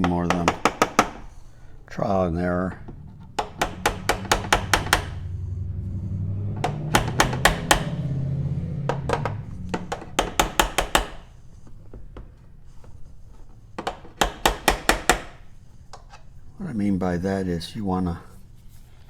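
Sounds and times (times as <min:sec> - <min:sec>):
hammer tapping on metal: 0:00.0 - 0:01.4, 0:02.9 - 0:11.3, 0:13.8 - 0:15.4
low steady hum: 0:01.4 - 0:10.1.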